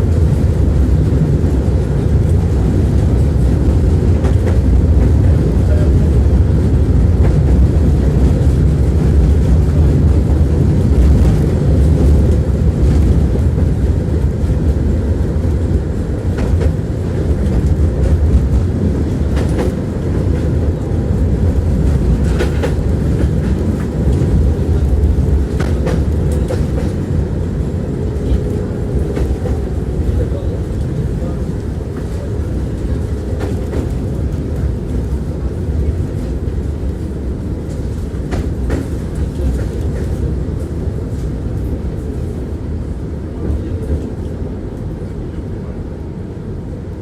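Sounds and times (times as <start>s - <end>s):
tram wheels rumbling on rails: 0.0s - 47.0s
clacks over rail joints: 16.2s - 27.2s, 28.1s - 37.0s, 37.6s - 40.3s.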